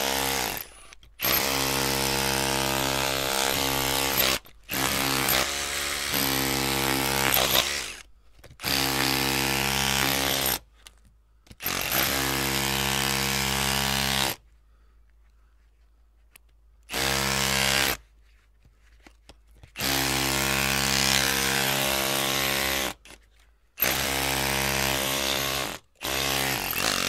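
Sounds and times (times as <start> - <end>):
electric drill running: 0.0 - 8.0.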